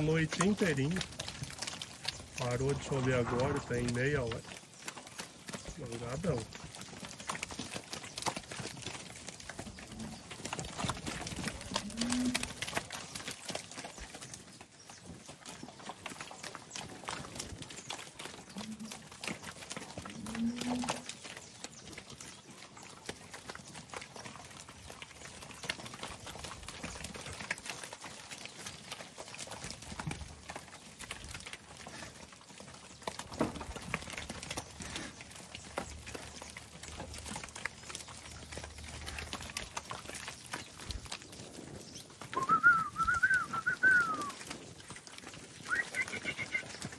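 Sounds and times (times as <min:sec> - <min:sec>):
hoof steps and knocks: 0:00.0 - 0:46.9
calves calling: 0:41.9 - 0:44.4, 0:45.6 - 0:46.9.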